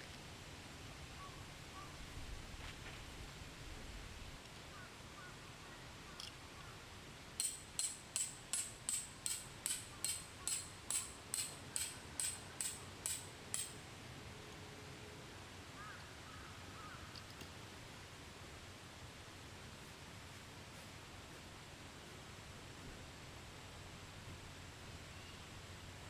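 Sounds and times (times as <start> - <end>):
hammer striking tent peg: 7.4 - 13.8.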